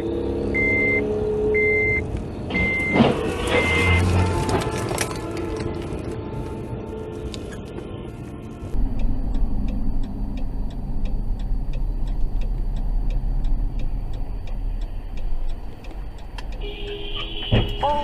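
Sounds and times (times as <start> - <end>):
car rumbling in motion: 7.3 - 18.0
regular ticking: 8.8 - 17.2.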